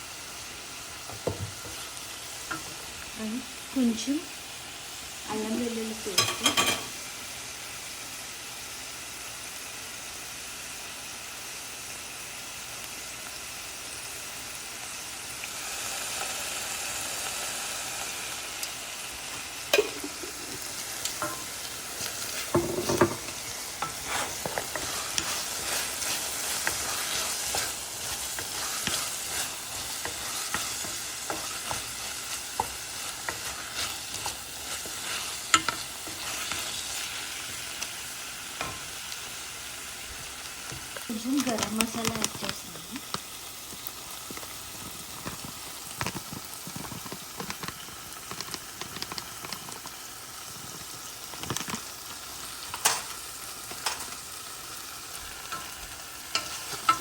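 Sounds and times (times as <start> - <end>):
masala sizzling in oil: 0.0 - 57.0
spoon scraping a pan: 6.1 - 7.0, 19.7 - 37.9, 52.5 - 57.0.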